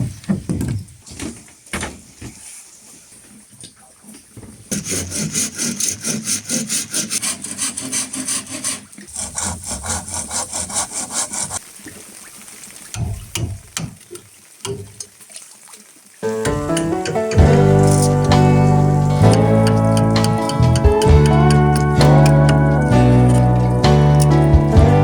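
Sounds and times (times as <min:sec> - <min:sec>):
hand saw cutting bamboo: 0:04.7 - 0:11.6.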